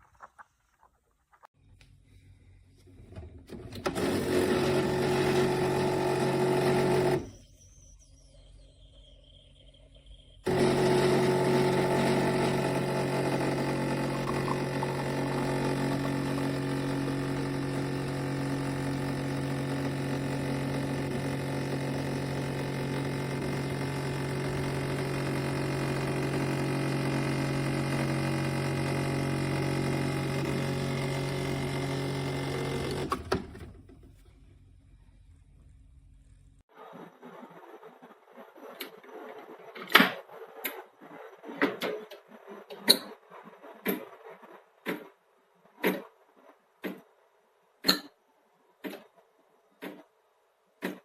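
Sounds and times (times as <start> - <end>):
espresso machine pump humming: 3.8 - 7.5, 10.5 - 33.4.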